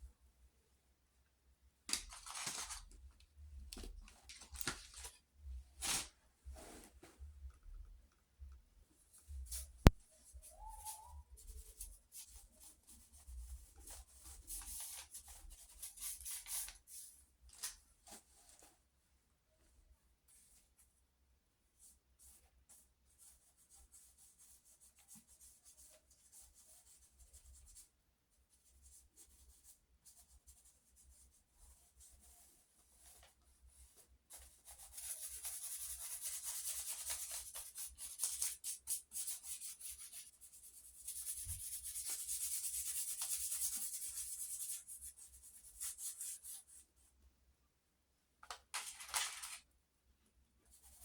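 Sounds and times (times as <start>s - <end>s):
pencil scratching on paper: 34.4s - 46.8s.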